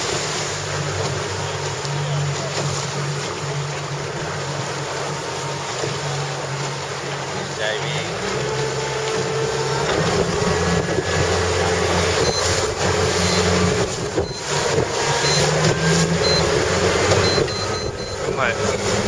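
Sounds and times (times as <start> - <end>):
motorboat engine humming: 0.0 - 19.0
water noise: 0.0 - 19.0
wind: 0.0 - 19.0
faint high beeps: 12.2 - 13.5, 14.2 - 14.6, 15.2 - 15.5, 16.2 - 16.5, 17.2 - 18.5.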